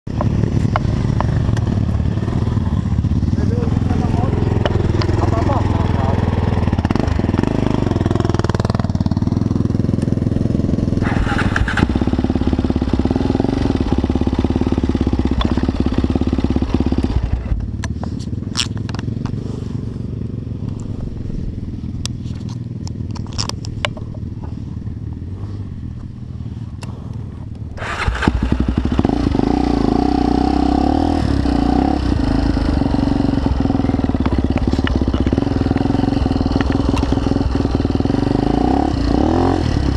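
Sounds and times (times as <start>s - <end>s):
motorcycle engine running: 0.1s - 39.9s
sharp clicks: 22.0s - 24.2s, 33.6s - 37.4s.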